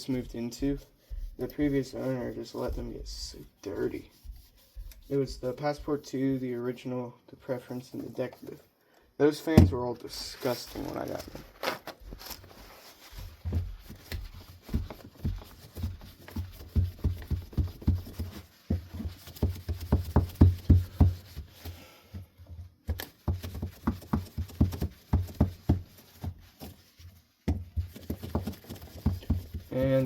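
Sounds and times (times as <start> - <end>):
things rummaged and moved by hand: 7.8 - 30.0.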